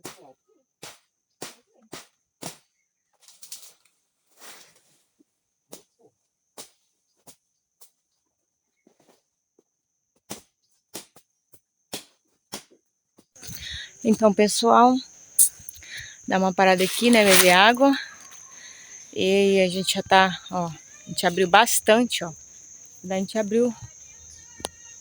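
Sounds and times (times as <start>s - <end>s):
brush rustling swishes: 13.4s - 13.9s, 14.8s - 22.1s
high-pitched insect drone: 13.4s - 25.0s
branches cracking and snapping: 16.8s - 18.2s.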